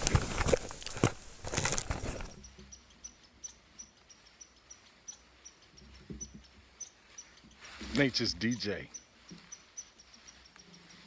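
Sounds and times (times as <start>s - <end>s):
handling knocks and rustles: 0.0s - 2.4s
small animal high chirping: 2.4s - 11.0s.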